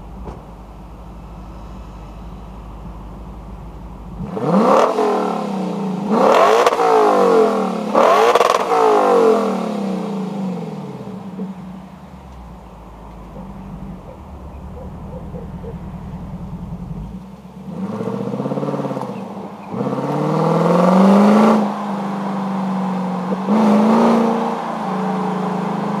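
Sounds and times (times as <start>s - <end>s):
car engine idling: 0.0s - 4.6s, 8.5s - 19.8s
car engine revving: 3.2s - 26.0s.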